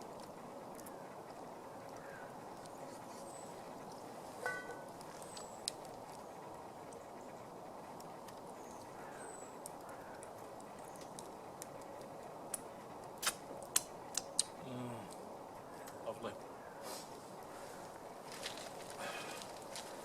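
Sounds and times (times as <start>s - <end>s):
wood fire hissing: 0.0s - 20.0s
fire pops and cracks: 4.7s - 7.1s, 7.9s - 16.0s, 18.2s - 20.0s.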